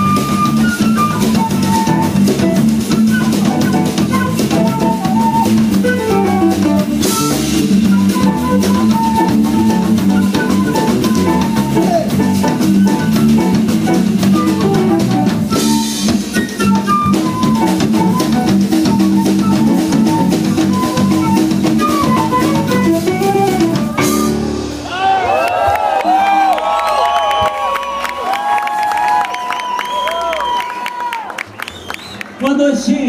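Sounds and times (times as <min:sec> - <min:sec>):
plucked melodic line: 0:00.0 - 0:24.8
held chords: 0:00.0 - 0:25.0
drum kit groove: 0:00.0 - 0:25.3.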